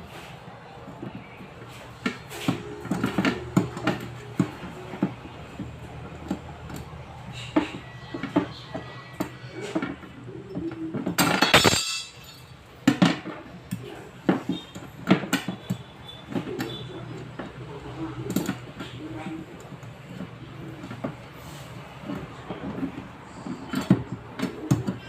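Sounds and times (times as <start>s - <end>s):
metal tools clinking: 11.2s - 12.6s.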